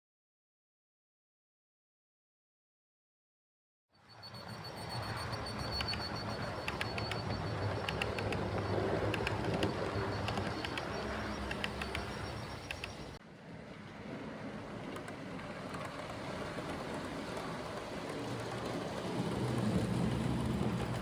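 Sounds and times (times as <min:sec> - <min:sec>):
model train motor hum and whine: 0:04.1 - 0:21.0
wheels clicking over rail joints: 0:04.6 - 0:21.0.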